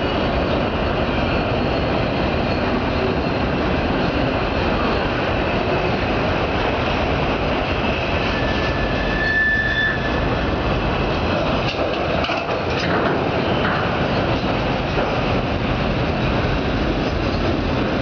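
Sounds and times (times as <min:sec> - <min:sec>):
freight cars rumbling and rattling: 0:00.0 - 0:18.0
high wheel squeal: 0:08.0 - 0:10.6.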